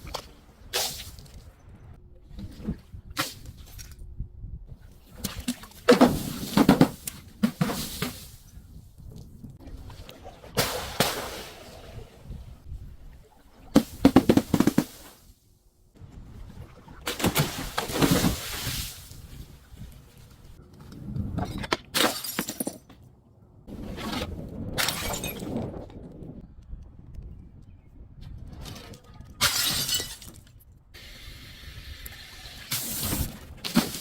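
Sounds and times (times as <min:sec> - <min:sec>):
glass bottles shattering: 0:22.0 - 0:22.9, 0:24.8 - 0:25.5, 0:29.4 - 0:30.4.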